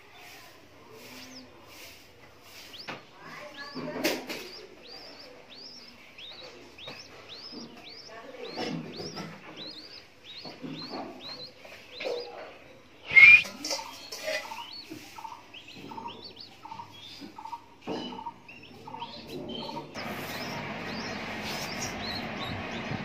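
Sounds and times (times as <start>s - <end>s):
nestling bird cheeping: 13.0s - 17.5s.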